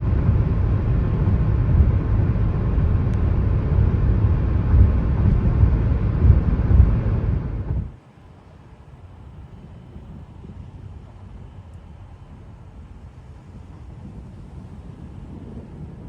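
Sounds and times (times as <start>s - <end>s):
wind buffeting microphone: 0.0s - 8.0s, 9.0s - 16.0s.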